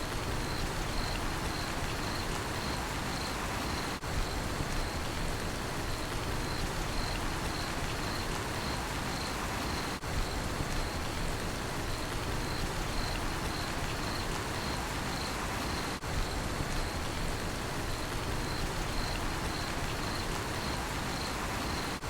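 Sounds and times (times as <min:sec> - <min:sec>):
rain falling: 0:00.0 - 0:22.0
cricket chirping: 0:00.2 - 0:05.1, 0:05.9 - 0:10.0, 0:11.9 - 0:15.9, 0:17.8 - 0:22.0.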